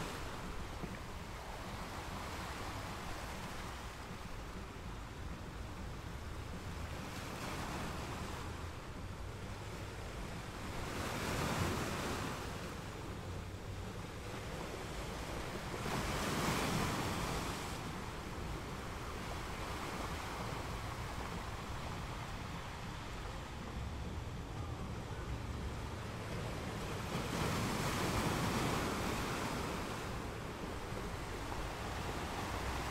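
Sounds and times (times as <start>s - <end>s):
ocean waves breaking: 0.0s - 32.9s.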